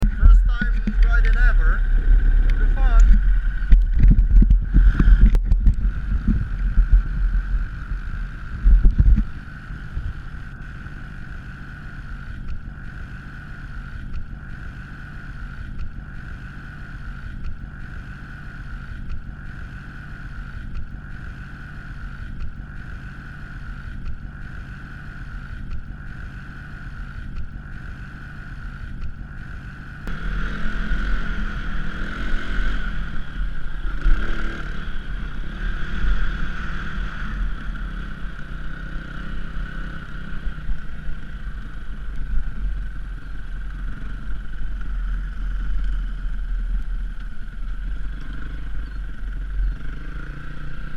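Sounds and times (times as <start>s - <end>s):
wind rumble on microphone: 0.0s - 11.3s, 30.0s - 50.6s
dirt bike engine running: 0.0s - 50.9s.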